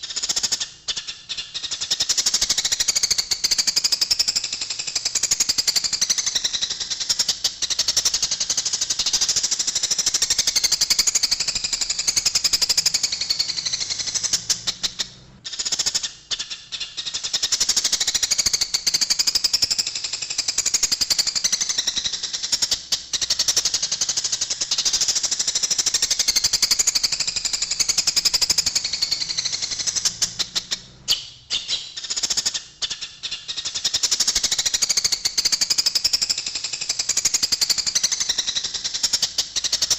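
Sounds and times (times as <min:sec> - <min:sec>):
sparrows chattering: 0:05.0 - 0:36.3.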